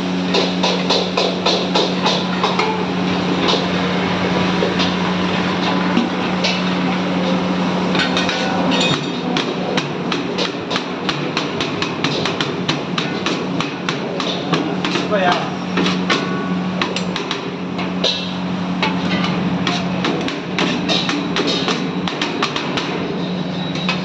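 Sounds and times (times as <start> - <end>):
metal utensils clattering: 7.9 - 9.3, 16.9 - 21.9.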